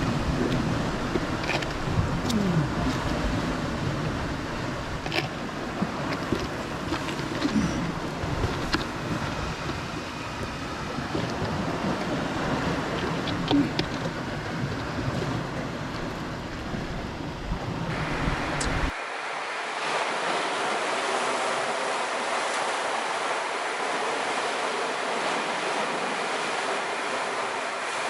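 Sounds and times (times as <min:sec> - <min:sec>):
wind buffeting microphone: 0:00.0 - 0:19.0
waves washing on rocky shore: 0:00.0 - 0:28.0.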